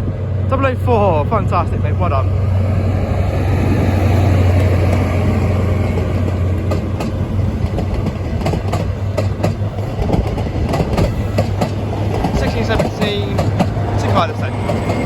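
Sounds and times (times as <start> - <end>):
train engine droning: 0.0 - 15.0
train wheels clicking over rail joints: 3.5 - 15.0.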